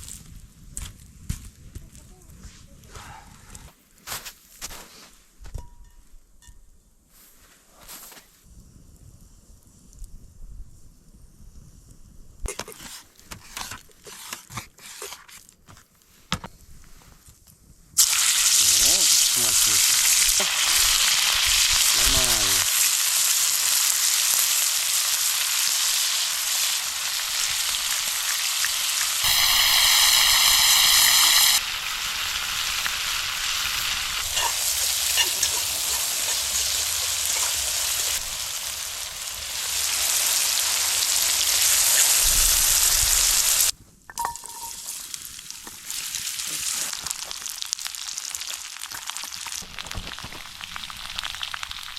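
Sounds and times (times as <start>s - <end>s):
meat sizzling in a pan: 18.0s - 43.7s, 44.8s - 51.9s.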